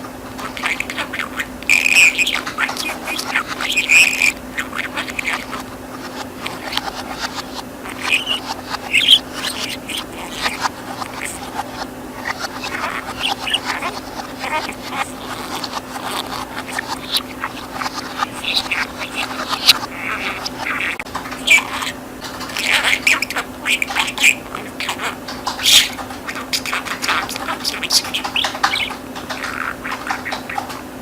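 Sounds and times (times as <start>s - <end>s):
faint steady hum: 0.0s - 31.0s
budgerigar chattering: 0.3s - 30.9s.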